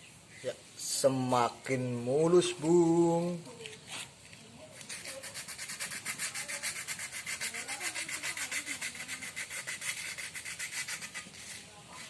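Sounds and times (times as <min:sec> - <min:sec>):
sandpaper rubbing on metal: 0:04.8 - 0:12.0.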